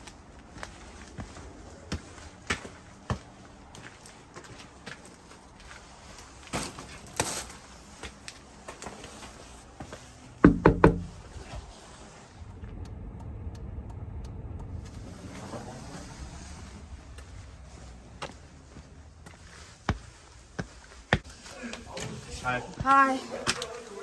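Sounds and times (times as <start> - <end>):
car door thuds: 10.4 - 11.5
low steady rumble: 10.4 - 20.6.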